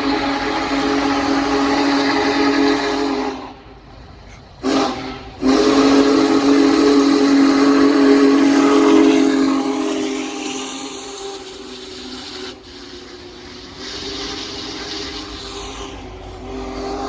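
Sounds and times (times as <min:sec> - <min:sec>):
steam whistle chord: 0:04.6 - 0:13.1.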